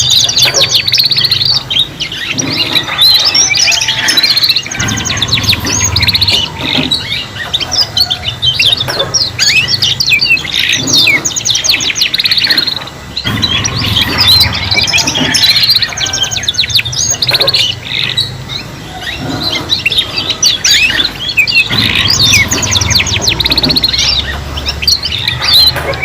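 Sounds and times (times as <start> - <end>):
canaries singing trills: 0.0 - 26.0
low hum: 4.6 - 11.7, 12.8 - 26.0.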